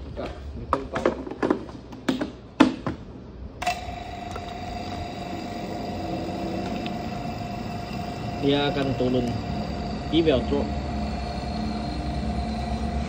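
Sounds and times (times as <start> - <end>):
vacuum pump running with whine: 3.6 - 13.0.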